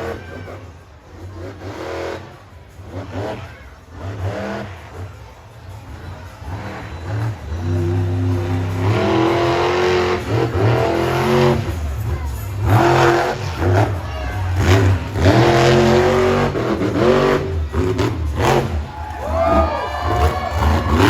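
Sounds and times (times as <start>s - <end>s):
monster truck engine revving: 0.0s - 21.0s.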